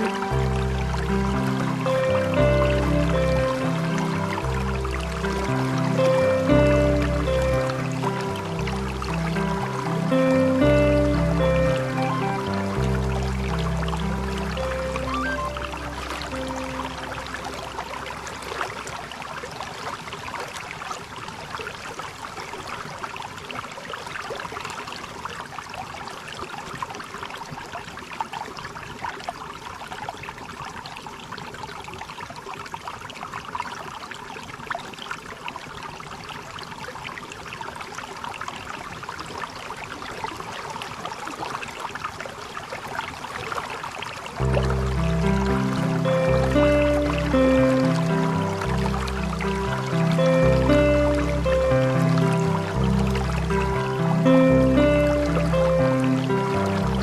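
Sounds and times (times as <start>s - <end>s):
waterfall rushing: 0.0s - 18.8s, 44.4s - 57.0s.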